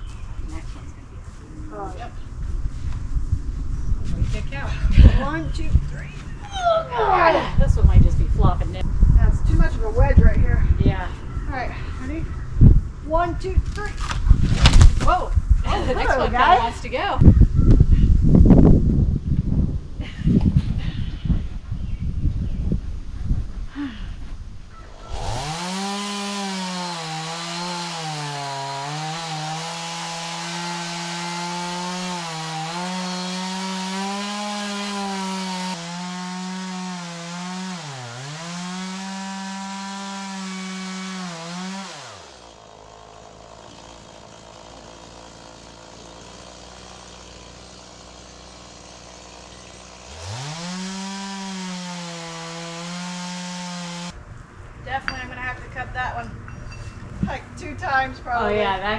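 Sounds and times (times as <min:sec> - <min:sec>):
chainsaw cutting wood: 0:25.0 - 0:54.2
chainsaw idling: 0:25.2 - 0:54.1.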